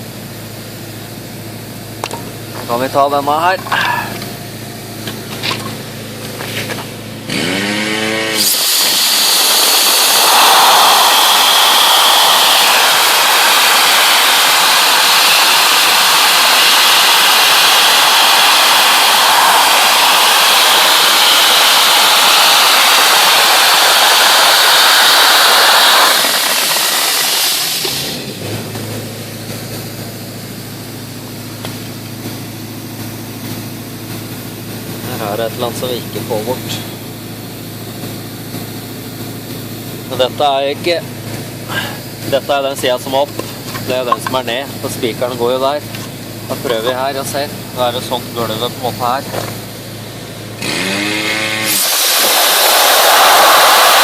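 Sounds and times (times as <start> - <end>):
dry-ice blasting nozzle hissing: 6.4 - 29.8, 50.4 - 54.0.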